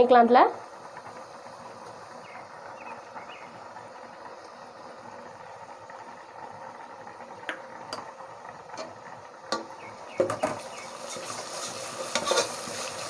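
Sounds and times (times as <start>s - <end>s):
onions sizzling in a pot: 0.0s - 13.0s
ladle scraping a metal pot: 10.3s - 13.0s.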